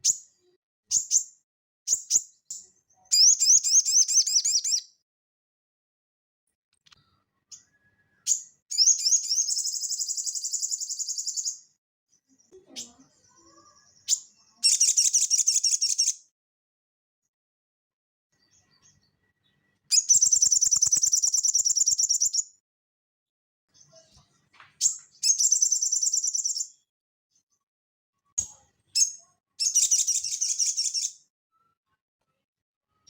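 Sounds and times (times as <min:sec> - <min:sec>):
bird chirps: 0:00.0 - 0:05.0, 0:06.9 - 0:16.3, 0:18.3 - 0:22.6, 0:23.7 - 0:26.8, 0:28.4 - 0:31.2
bird singing high trills: 0:19.9 - 0:22.4, 0:24.8 - 0:26.7.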